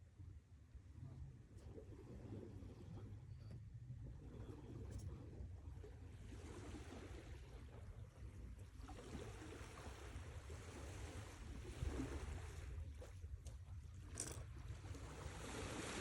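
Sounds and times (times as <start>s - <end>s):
sea waves washing in: 14.9s - 16.0s.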